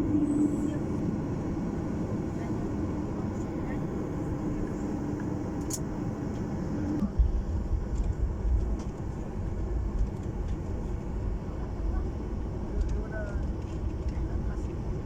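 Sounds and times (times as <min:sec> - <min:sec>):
steady cabin hum: 0:00.0 - 0:07.7
heavy low rumble of wheels: 0:00.0 - 0:15.0.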